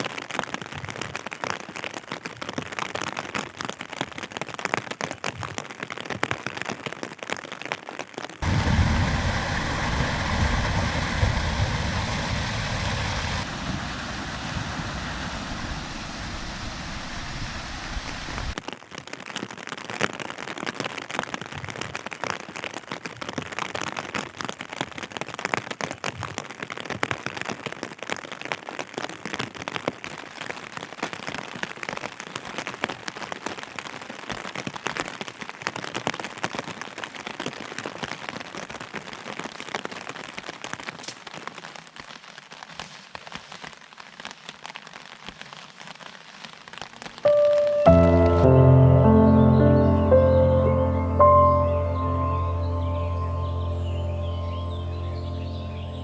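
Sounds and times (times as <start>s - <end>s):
rain pattering: 0.0s - 56.0s
deep rushing rumble: 8.4s - 18.6s.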